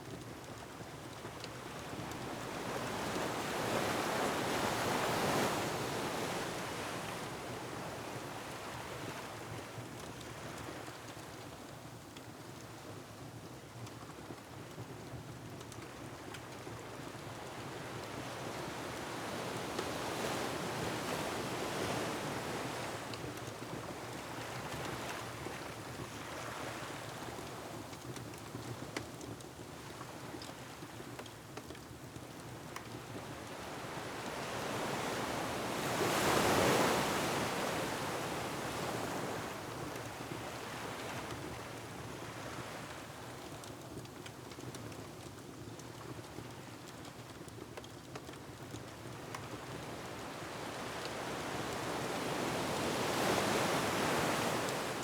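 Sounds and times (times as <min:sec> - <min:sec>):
faint ticks: 0:26.4 - 0:33.3
surf washing against rocky shore: 0:33.8 - 0:41.3, 0:49.5 - 0:55.0.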